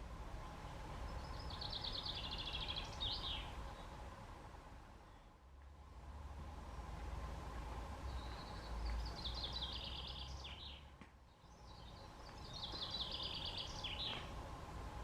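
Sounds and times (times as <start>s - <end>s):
songbird singing: 0.0s - 4.1s, 4.9s - 5.7s, 6.5s - 14.9s.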